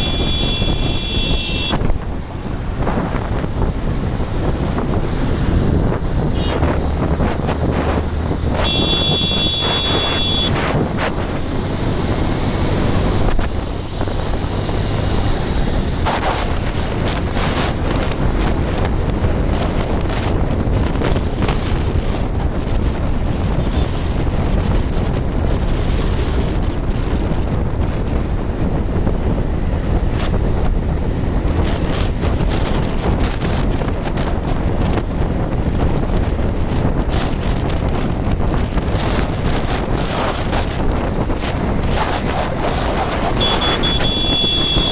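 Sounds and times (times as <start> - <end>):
vehicle horn: 0.0 - 1.8, 6.3 - 6.6, 8.6 - 10.6, 43.4 - 44.9
wind buffeting microphone: 0.0 - 44.9
motorcycle engine: 8.3 - 17.9, 40.3 - 44.9.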